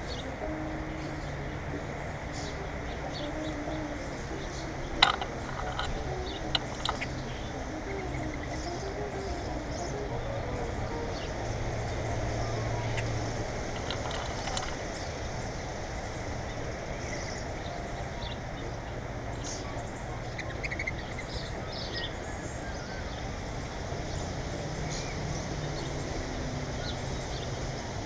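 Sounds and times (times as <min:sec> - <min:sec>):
steady low hum: 0:00.0 - 0:20.2
small birds chirping: 0:00.0 - 0:26.1.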